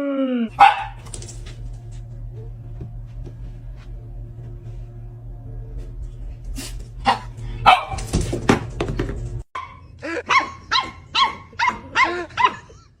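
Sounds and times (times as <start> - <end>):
dog barking: 0.6 - 1.0, 7.1 - 8.0, 9.6 - 12.7.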